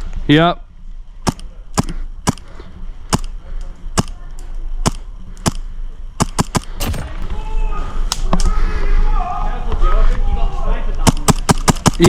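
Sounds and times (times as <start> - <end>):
airsoft gun shots: 6.2 - 7.2, 11.0 - 12.0.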